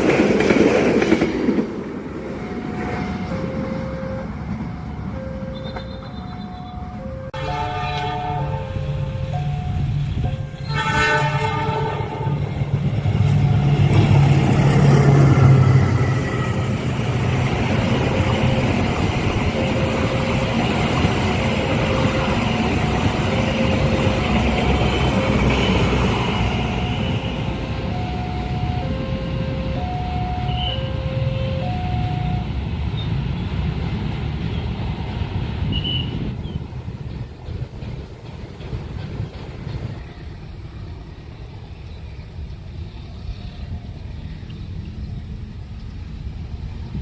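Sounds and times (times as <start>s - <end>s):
train passing with wheel noise: 0.0s - 47.0s
level crossing alarm two tones: 2.5s - 10.7s, 17.7s - 32.6s
train horn: 5.5s - 14.2s, 17.8s - 32.5s.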